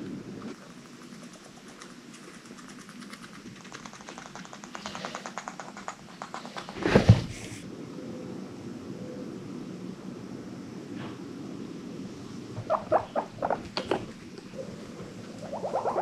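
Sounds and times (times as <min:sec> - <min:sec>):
guinea pig clicking: 0:00.6 - 0:06.8.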